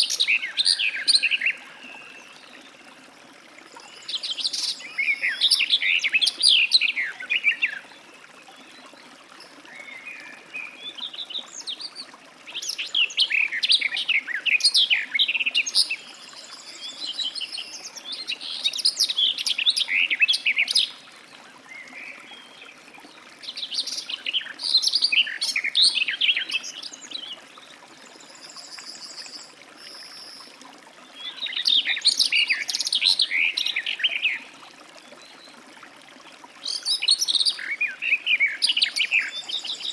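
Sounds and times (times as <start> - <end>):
warbler singing: 36.7 - 39.9.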